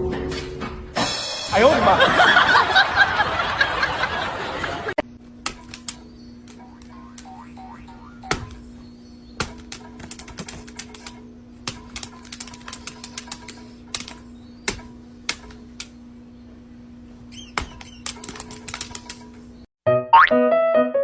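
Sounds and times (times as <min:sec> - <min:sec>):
steady low hum: 0:02.9 - 0:19.7
sharp clicking and tapping: 0:05.4 - 0:08.7, 0:09.4 - 0:16.0, 0:17.5 - 0:19.4.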